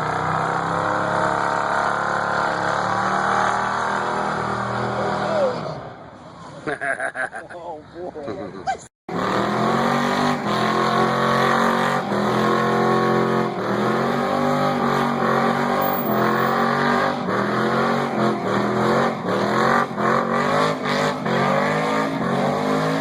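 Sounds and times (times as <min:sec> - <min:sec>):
car engine revving hard: 0:09.1 - 0:23.0.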